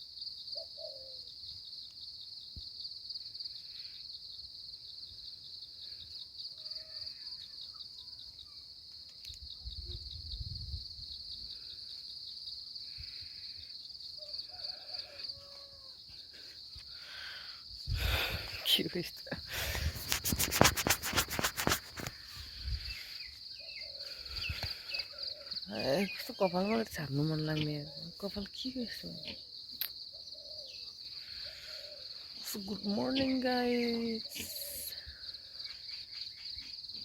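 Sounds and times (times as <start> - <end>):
high-pitched insect trill: 0.0 - 37.0
faint bird calls: 0.5 - 1.3, 30.1 - 32.4.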